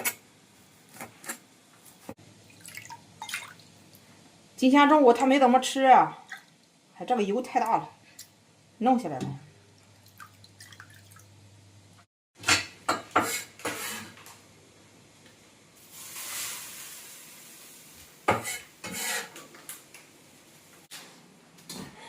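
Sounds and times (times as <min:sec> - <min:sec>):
pots and utensils clattering: 0:12.4 - 0:14.2, 0:18.3 - 0:19.5.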